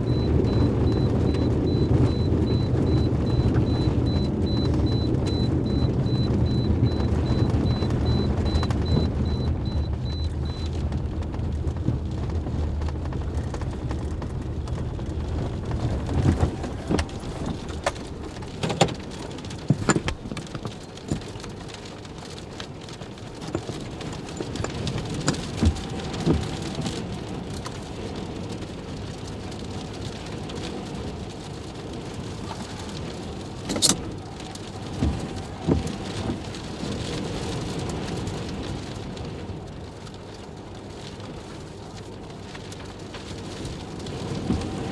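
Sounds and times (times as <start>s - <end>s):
low wind buffeting: 0.0s - 20.7s
wind and rain rushing: 0.0s - 44.9s.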